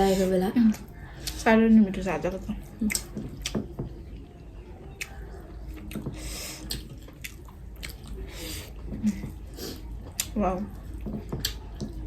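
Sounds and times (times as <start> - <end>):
chewing with wet mouth clicks: 2.7 - 12.0.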